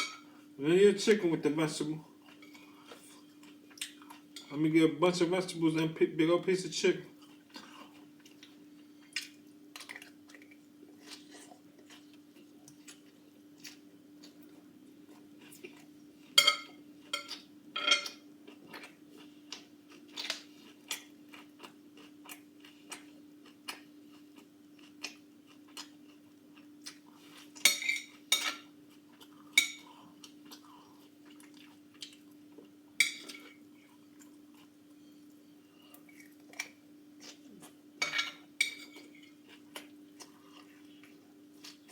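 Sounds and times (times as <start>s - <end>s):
person chewing: 7.2s - 16.4s, 17.0s - 37.8s, 38.8s - 41.9s
utensils clinking against dish: 16.4s - 18.2s.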